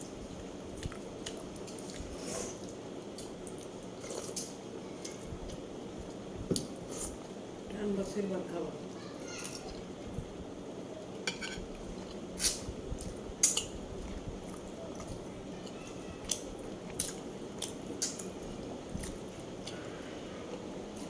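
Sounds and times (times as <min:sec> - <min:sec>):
utensils clinking on a plate: 0:11.2 - 0:11.7.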